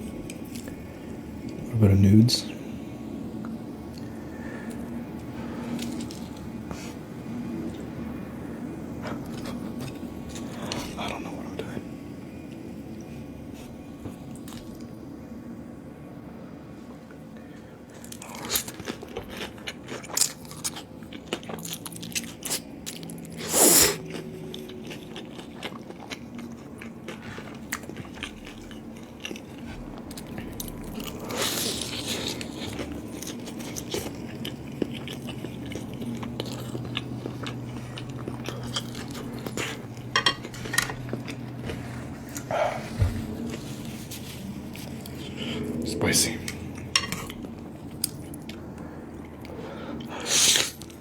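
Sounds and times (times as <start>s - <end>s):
person chewing food: 17.9s - 45.8s, 46.5s - 51.0s.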